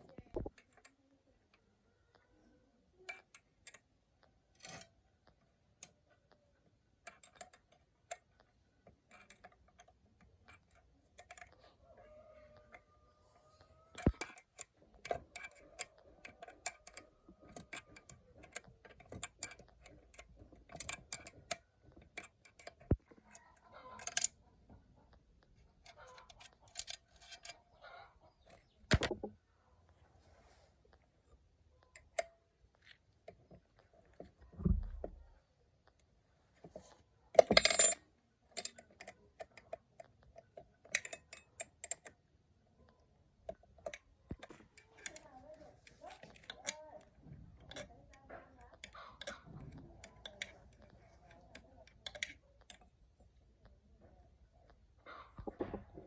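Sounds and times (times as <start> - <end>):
metal tools clinking: 37.4 - 38.0.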